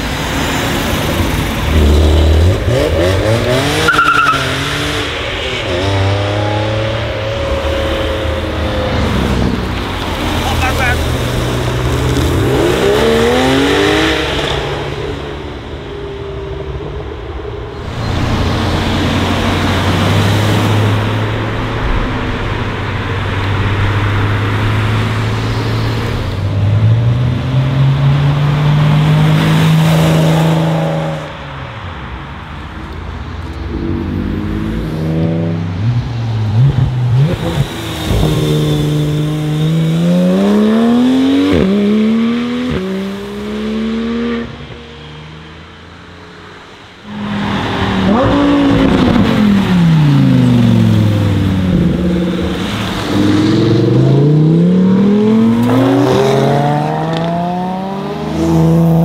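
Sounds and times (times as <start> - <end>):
car engine revving sharply: 47.1 - 59.0
sports cars accelerating past: 47.1 - 59.0.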